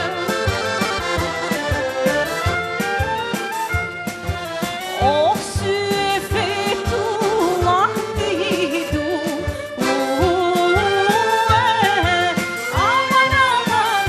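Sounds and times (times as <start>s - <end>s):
band with steady drum beat: 0.0s - 14.0s
person singing with wide vibrato: 5.4s - 14.0s.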